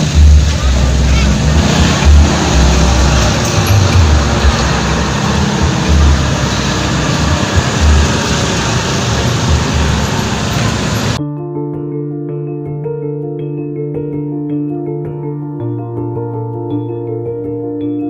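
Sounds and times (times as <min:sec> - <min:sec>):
heavy rain: 0:00.0 - 0:11.2
wind gusts buffeting microphone: 0:00.1 - 0:11.2.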